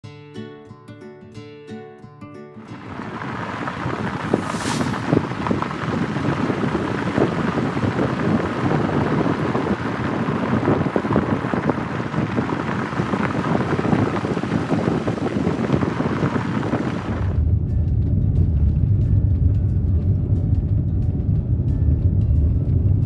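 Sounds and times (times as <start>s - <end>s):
wind buffeting microphone: 2.7s - 23.0s
short falling whoosh: 3.6s - 5.6s.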